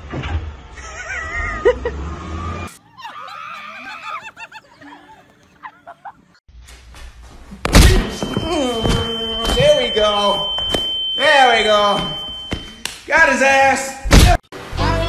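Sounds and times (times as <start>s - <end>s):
people laughing and squealing: 0.8s - 2.0s, 2.7s - 6.4s.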